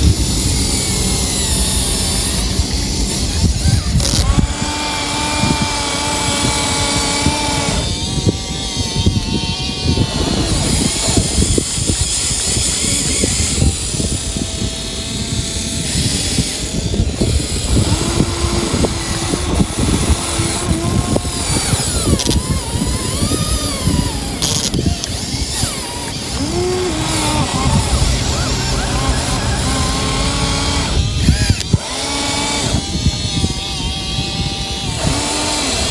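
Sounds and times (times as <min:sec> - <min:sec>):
toy excavator motors rattling: 0:00.0 - 0:35.9.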